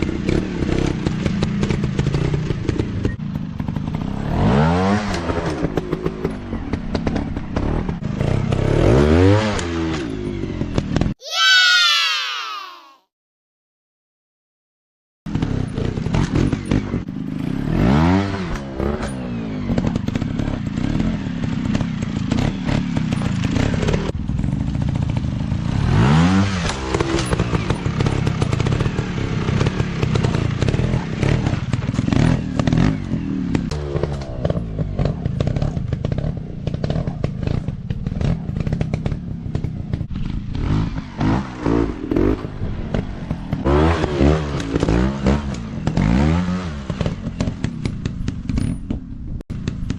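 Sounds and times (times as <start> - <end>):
dirt bike engine revving: 0.0 - 11.1, 15.3 - 48.5.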